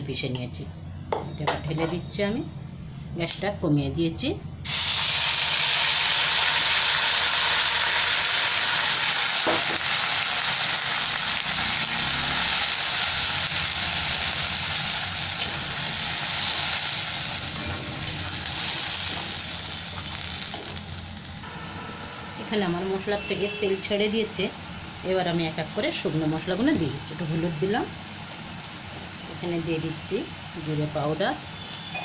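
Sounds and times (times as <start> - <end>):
paste sizzling in hot oil: 4.7 - 21.4.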